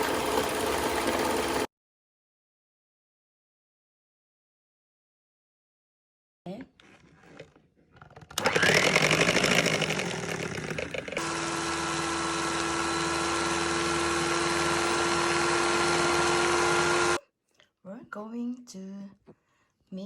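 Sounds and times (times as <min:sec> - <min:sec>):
electric hand mixer whining: 0:00.0 - 0:01.7, 0:08.4 - 0:17.2.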